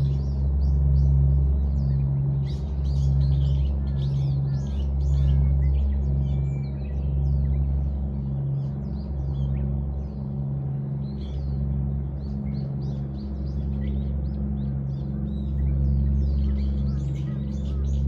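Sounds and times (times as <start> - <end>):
steady low hum: 0.0 - 18.0
small birds chirping: 15.3 - 18.0.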